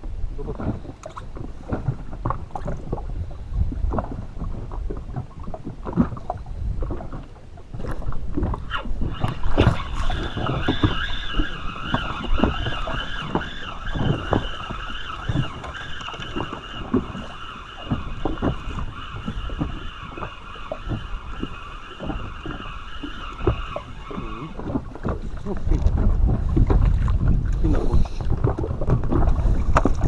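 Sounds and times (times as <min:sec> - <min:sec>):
water slapping against hull: 0:00.0 - 0:30.0
steady wavering whine: 0:09.1 - 0:24.6.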